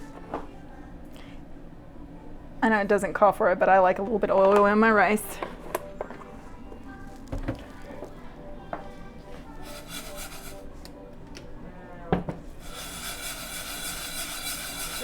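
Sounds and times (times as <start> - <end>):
scraping and rubbing: 9.6 - 10.7, 12.6 - 15.0.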